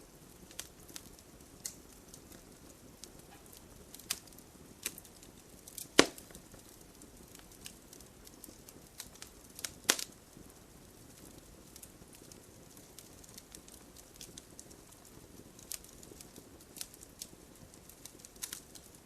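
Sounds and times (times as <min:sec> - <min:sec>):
wood fire crackling: 0:00.0 - 0:19.0
sharp pops and snaps: 0:00.4 - 0:02.4, 0:03.0 - 0:10.2, 0:11.2 - 0:19.0.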